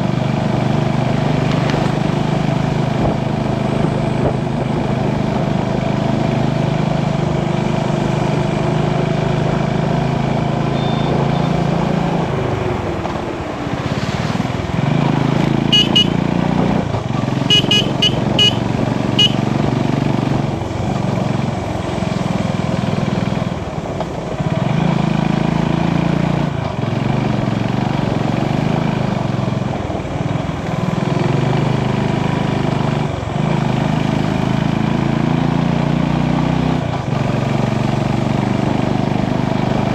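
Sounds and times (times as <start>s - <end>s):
short high horn beeps: 10.7s - 11.6s, 15.6s - 16.2s, 17.5s - 19.5s
motorcycle engine running: 14.6s - 39.9s.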